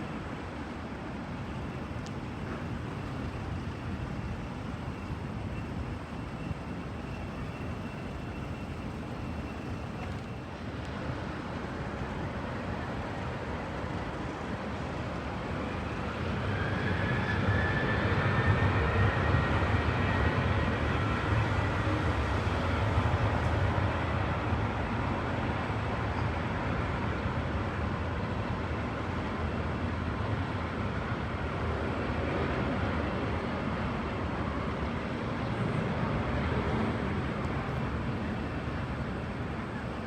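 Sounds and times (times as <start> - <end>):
faint high whine: 0.0 - 13.6
jet engines roaring: 15.6 - 23.9.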